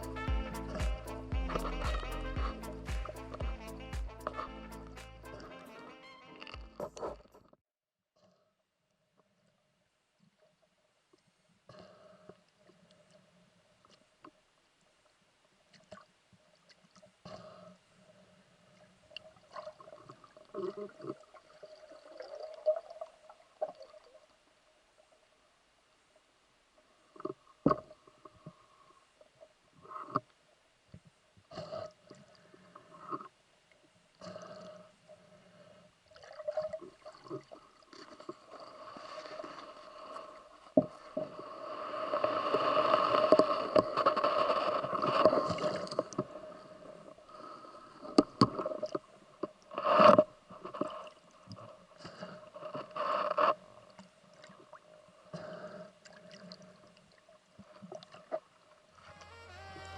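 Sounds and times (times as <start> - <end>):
underwater moving water and bubbles: 15.6 - 25.4, 27.0 - 59.9.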